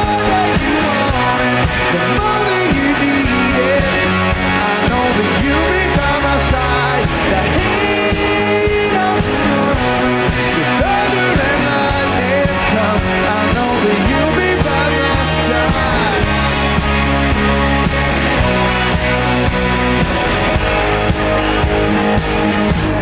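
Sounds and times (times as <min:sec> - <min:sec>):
rock band playing live: 0:00.0 - 0:23.0.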